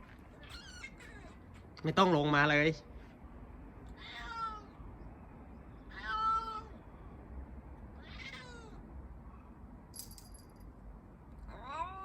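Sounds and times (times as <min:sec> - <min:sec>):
cat meowing: 0:00.4 - 0:01.4, 0:04.0 - 0:04.8, 0:05.9 - 0:06.8, 0:08.0 - 0:08.8, 0:11.5 - 0:12.0.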